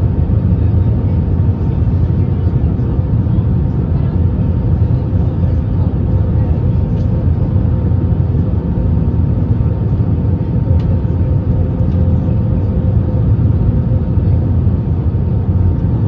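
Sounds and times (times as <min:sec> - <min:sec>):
aircraft engines and airflow rumble: 0:00.0 - 0:16.0.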